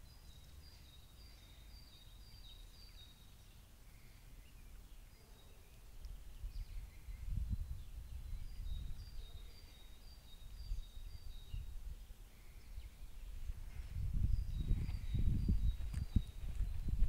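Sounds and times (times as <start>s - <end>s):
small bird singing: 0.0s - 17.0s
low rumble on microphone: 6.0s - 9.7s, 10.6s - 17.0s.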